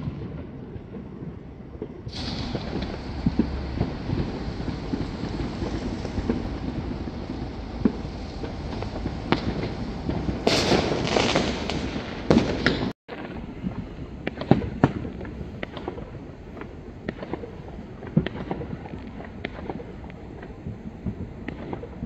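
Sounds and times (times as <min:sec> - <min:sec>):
low rumble: 0:00.0 - 0:12.6
fireworks bangs and crackles: 0:00.0 - 0:22.0
hissing crackling firework burst: 0:02.0 - 0:22.0.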